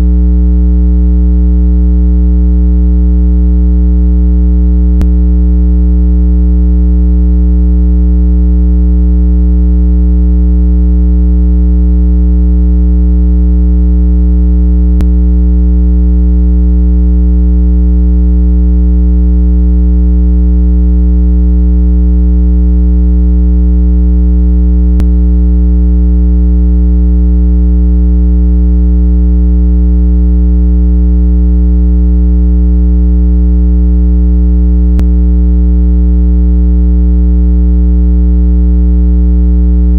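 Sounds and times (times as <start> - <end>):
low electronic tone: 0.0 - 1.3, 4.3 - 7.4, 13.8 - 16.6, 24.8 - 25.3, 34.8 - 35.4.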